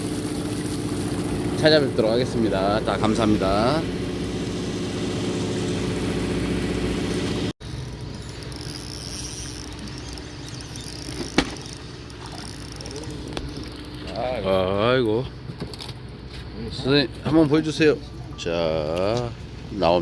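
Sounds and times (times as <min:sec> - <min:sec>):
steady hum: 0:00.0 - 0:15.4
boat engine idling: 0:00.0 - 0:16.2
sharp click: 0:08.0 - 0:13.5.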